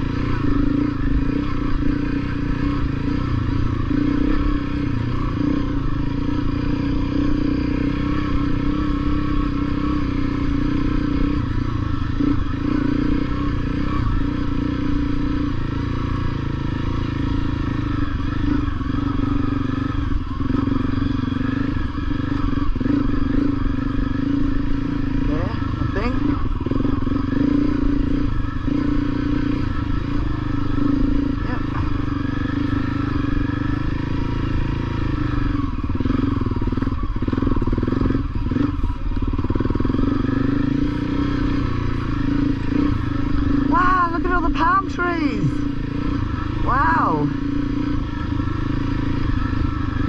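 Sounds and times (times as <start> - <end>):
dirt bike engine running: 0.0 - 50.0.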